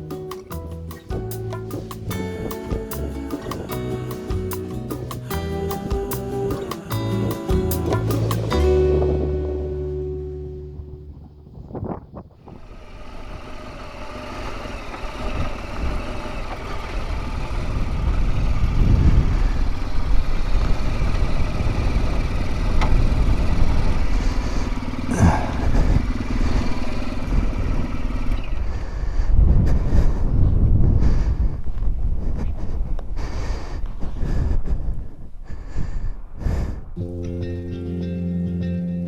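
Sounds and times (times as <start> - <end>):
wind on microphone: 1.2 - 13.8, 17.2 - 27.8, 28.6 - 37.2
motorcycle engine running: 12.9 - 29.1.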